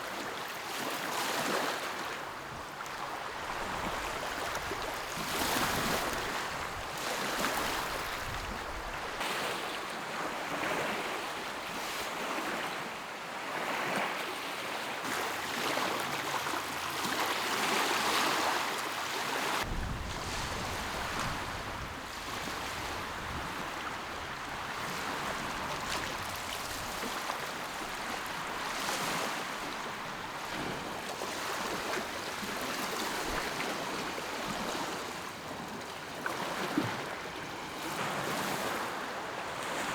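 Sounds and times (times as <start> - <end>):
waves lapping on shore: 0.0 - 39.9.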